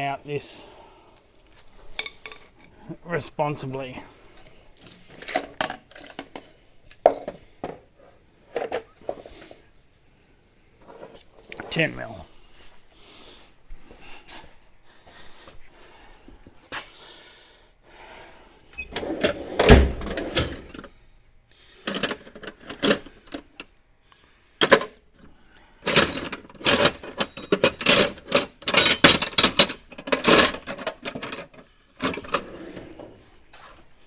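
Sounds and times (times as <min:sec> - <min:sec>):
metal tools clattering: 0:02.0 - 0:02.8, 0:18.8 - 0:20.9, 0:21.9 - 0:23.4, 0:25.8 - 0:32.6.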